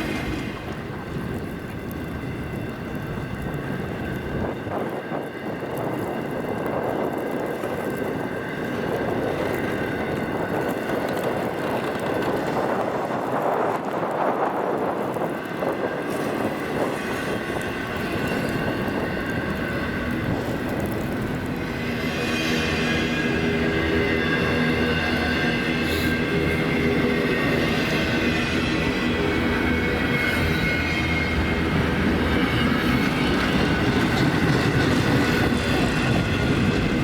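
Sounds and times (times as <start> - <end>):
freight train rumbling: 0.0 - 37.0.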